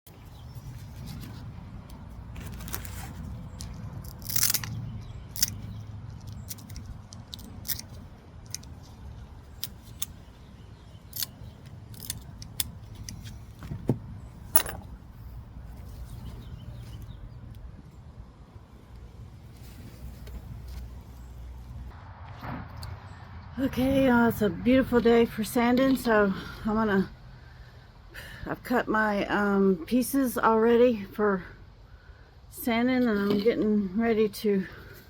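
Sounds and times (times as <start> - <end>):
steady low rumble: 0.4 - 25.9
broken china pieces clinking: 4.0 - 8.8, 14.5 - 15.0.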